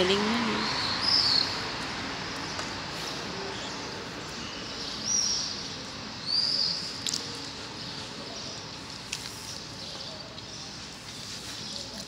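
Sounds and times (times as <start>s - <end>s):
street background hum: 0.0s - 12.0s
bird chirping: 3.5s - 8.8s.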